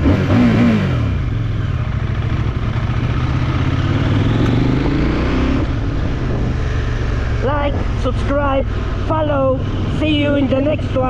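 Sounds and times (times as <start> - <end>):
motorcycle engine idling: 1.0 - 4.9.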